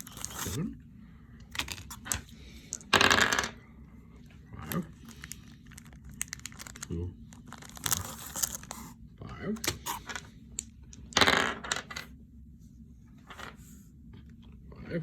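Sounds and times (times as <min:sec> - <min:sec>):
wrapper crinkling: 0:00.0 - 0:00.6, 0:05.0 - 0:08.9.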